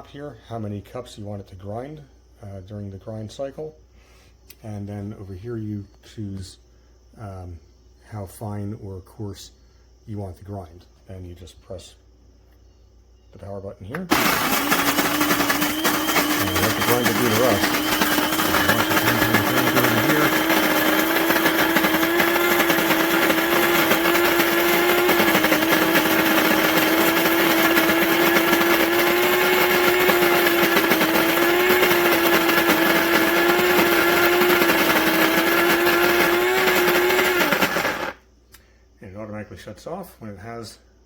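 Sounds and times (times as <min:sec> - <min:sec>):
coffee grinder grinding beans: 0:14.0 - 0:38.2.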